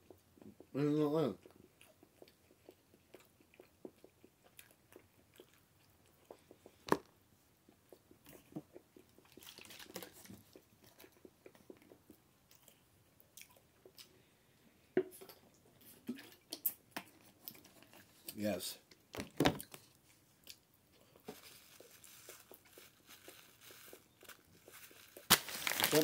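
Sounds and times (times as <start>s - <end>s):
soft mouth clicks while chewing: 1.4s - 6.9s, 7.6s - 14.2s, 15.0s - 18.0s.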